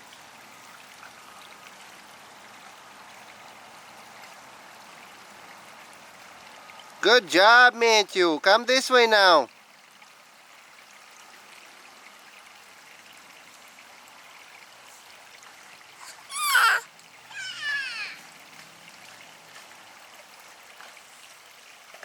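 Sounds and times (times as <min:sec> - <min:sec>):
stream trickling: 0:00.0 - 0:22.0
falling high-pitched calls: 0:16.0 - 0:18.2
high-pitched sweeping cry: 0:16.0 - 0:18.2.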